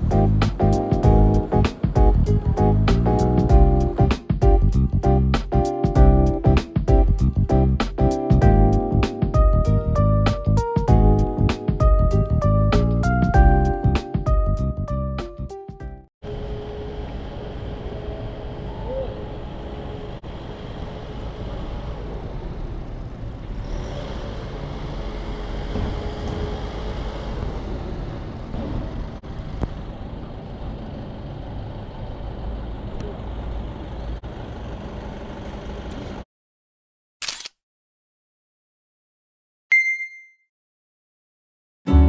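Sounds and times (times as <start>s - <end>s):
road traffic rumble: 0.0s - 5.3s, 16.2s - 36.2s.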